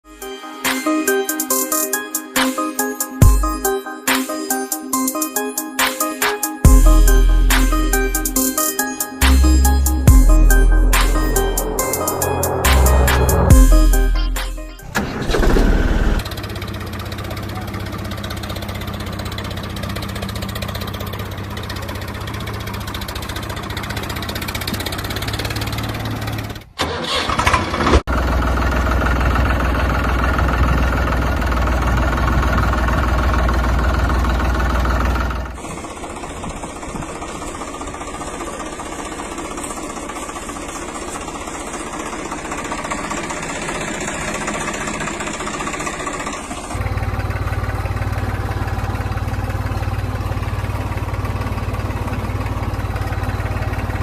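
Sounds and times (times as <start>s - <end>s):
vehicle engine running: 6.6s - 26.8s, 27.8s - 54.0s.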